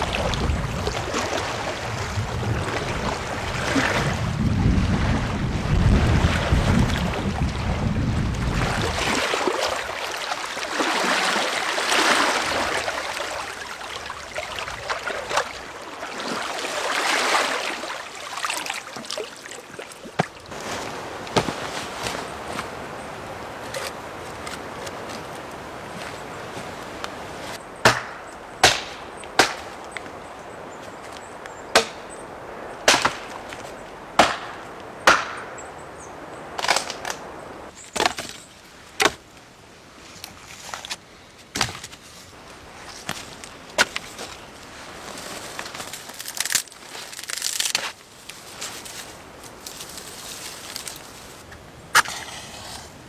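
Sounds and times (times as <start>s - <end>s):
axe strikes chopping wood: 27.8s - 29.7s, 31.7s - 32.0s, 32.9s - 33.3s, 34.2s - 35.5s, 39.0s - 39.2s.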